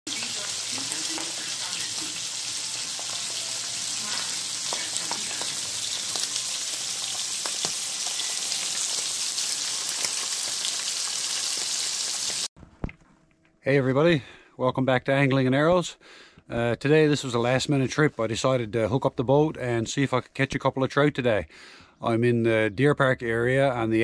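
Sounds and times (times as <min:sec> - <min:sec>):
fish frying with sizzle and pops: 0:00.1 - 0:12.5.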